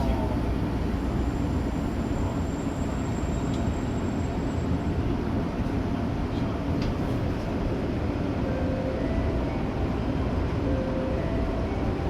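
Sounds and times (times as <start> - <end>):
high-pitched train whine: 0.0 - 5.1, 8.0 - 12.0
train rumble and hum: 0.0 - 12.0.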